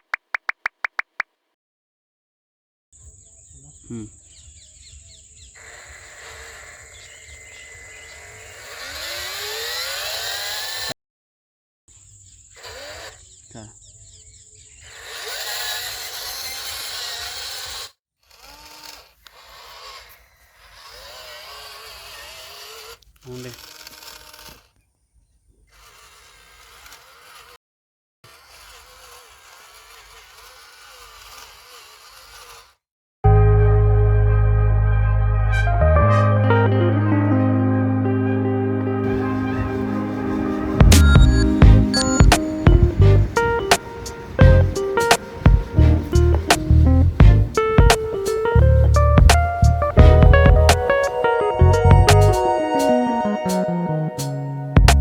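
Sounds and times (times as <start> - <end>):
small electric motor whirring: 5.4 - 11.0, 12.4 - 13.6, 14.6 - 24.8, 25.6 - 27.6, 28.3 - 32.8
motor whine speeding up: 5.8 - 10.9, 38.9 - 55.0
loud guitar music: 33.3 - 55.0.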